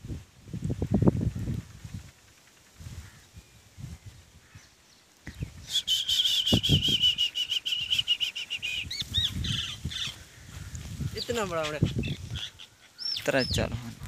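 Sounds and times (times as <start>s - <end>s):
bird singing fast trill: 4.6s - 10.2s, 11.2s - 13.7s.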